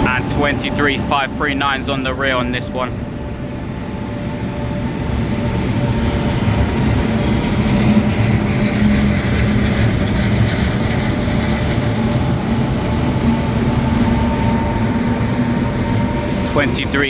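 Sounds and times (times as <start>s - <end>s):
train rail rumble: 0.0s - 17.0s
faint even whine: 13.2s - 17.0s.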